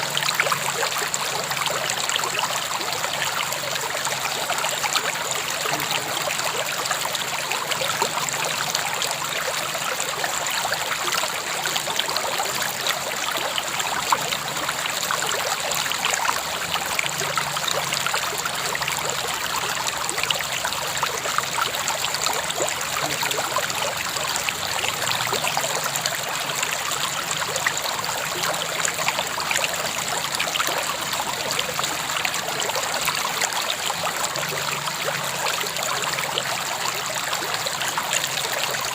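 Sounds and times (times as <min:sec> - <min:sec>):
river water over rocks: 0:00.0 - 0:38.9.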